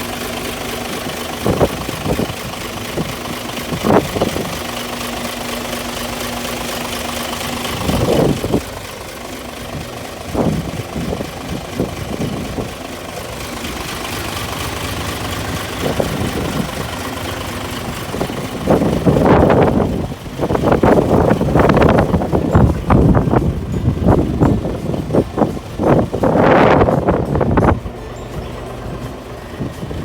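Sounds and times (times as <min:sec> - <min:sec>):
diesel engine idling: 0:00.0 - 0:30.0
engine knocks: 0:00.0 - 0:30.0.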